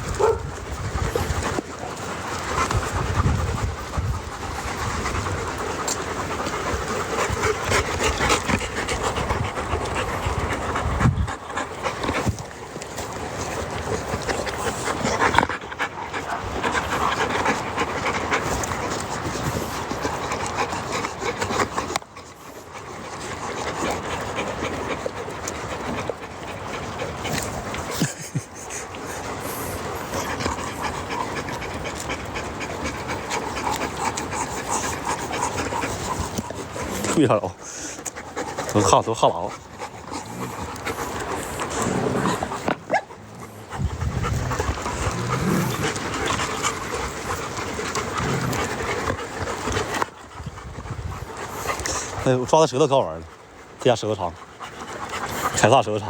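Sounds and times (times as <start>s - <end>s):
dogs panting: 0.0s - 56.0s
dogs rustling and scraping: 0.0s - 56.0s.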